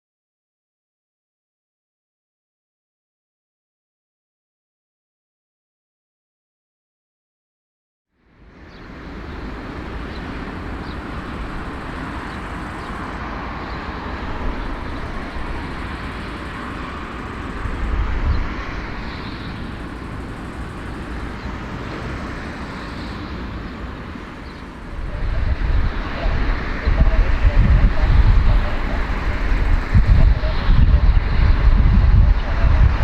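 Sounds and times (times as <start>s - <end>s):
vehicle engine rumbling: 8.4s - 33.0s.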